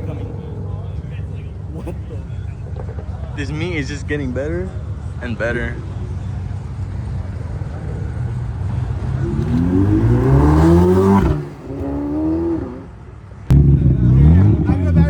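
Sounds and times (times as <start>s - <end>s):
sports car engine accelerating: 6.6s - 15.0s.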